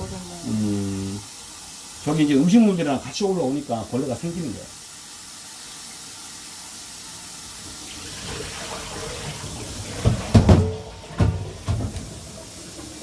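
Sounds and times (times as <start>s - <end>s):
tap water running into sink: 0.0s - 13.0s
loud knocks and clunks: 9.9s - 12.2s.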